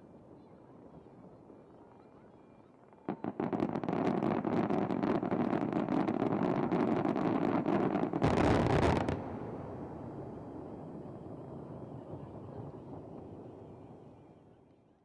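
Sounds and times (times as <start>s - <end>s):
fireworks crackling and popping: 2.8s - 14.0s.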